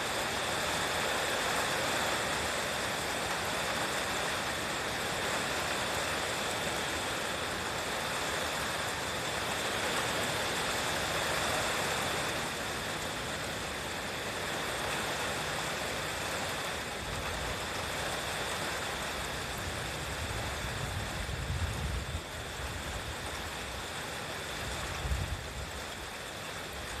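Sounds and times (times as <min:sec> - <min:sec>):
wind and rain rushing: 0:00.0 - 0:27.0
gusts buffeting microphone: 0:20.0 - 0:23.2.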